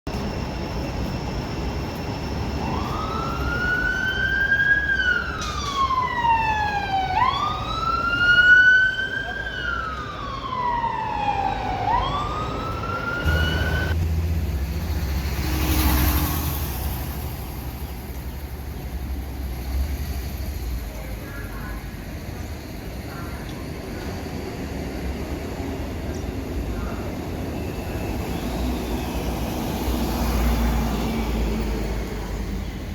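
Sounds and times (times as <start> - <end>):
passing traffic: 0.1 - 32.9
faster sweeping siren: 1.6 - 14.0
motorcycle wail siren: 2.6 - 14.0.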